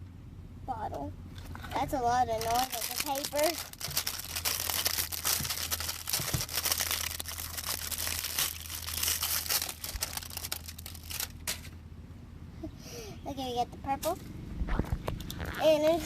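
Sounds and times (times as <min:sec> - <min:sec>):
paper packaging crumpling and tearing: 0:02.3 - 0:11.7.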